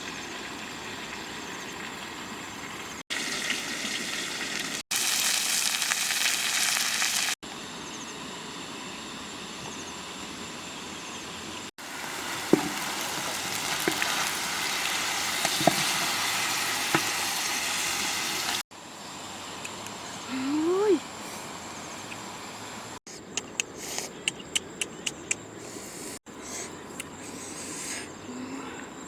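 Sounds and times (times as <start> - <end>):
food sizzling over fire: 0.1 - 7.4, 10.0 - 23.0
fire pops and crackles: 11.8 - 18.6.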